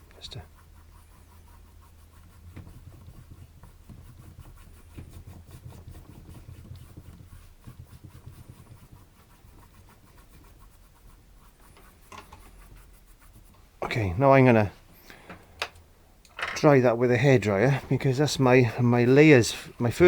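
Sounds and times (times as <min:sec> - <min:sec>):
paintbrush dabbing on canvas: 0:00.0 - 0:15.1.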